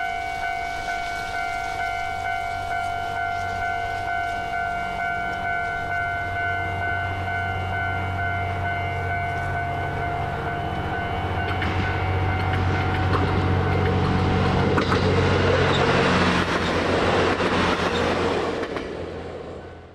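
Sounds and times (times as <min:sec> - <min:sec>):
train rumbling: 0:00.0 - 0:19.9
wheels clacking over rail joints: 0:11.4 - 0:19.6.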